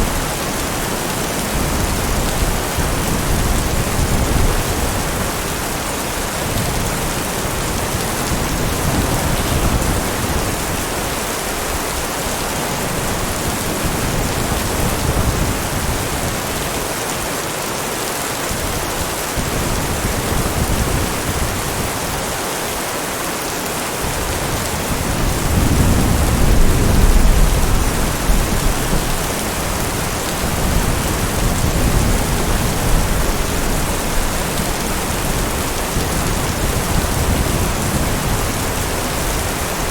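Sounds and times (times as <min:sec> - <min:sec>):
heavy rain falling: 0:00.0 - 0:39.9
low rumble of thunder: 0:24.1 - 0:39.8.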